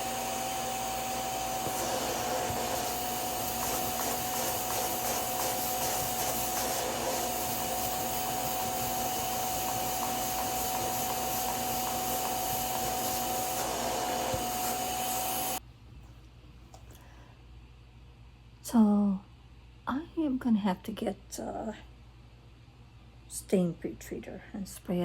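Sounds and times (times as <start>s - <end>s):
spot cleaner suction motor whirring: 0.0s - 15.6s.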